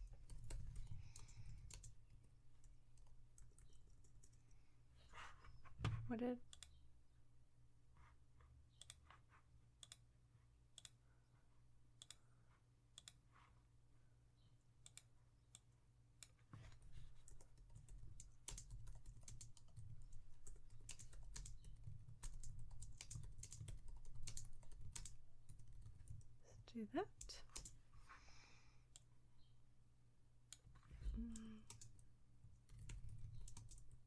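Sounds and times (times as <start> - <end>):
typing on computer keyboard: 0.0 - 4.4, 16.7 - 26.4, 27.4 - 27.8, 31.2 - 34.0.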